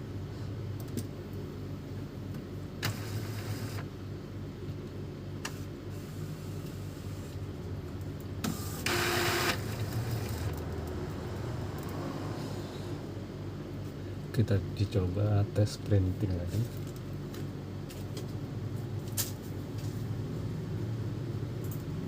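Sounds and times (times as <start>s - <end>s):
steady low hum: 0.0s - 22.0s
printer mechanical whirring: 2.7s - 3.9s, 5.3s - 12.9s.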